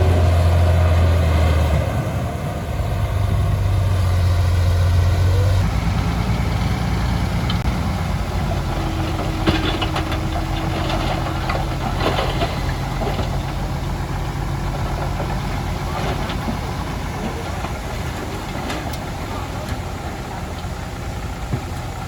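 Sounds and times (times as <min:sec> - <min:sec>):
diesel machinery engine running: 0:00.0 - 0:22.0
metallic clanking and rattling: 0:08.3 - 0:22.0.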